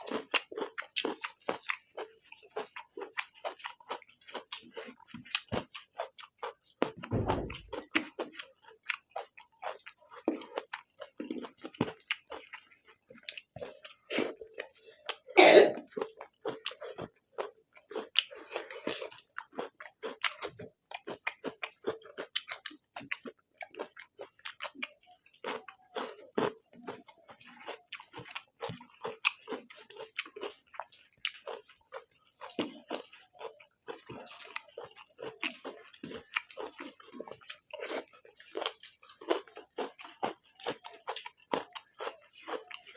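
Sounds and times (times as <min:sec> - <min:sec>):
people chewing with wet smacks: 0:00.0 - 0:42.9
low thump: 0:07.0 - 0:07.8.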